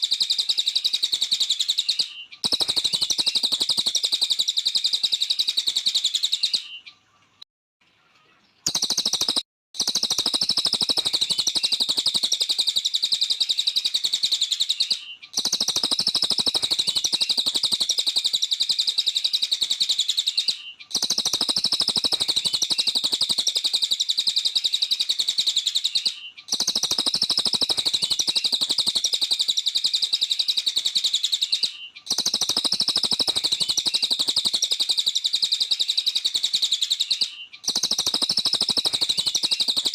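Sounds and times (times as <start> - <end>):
songbird rapid chirping trill: 0.0 - 39.9.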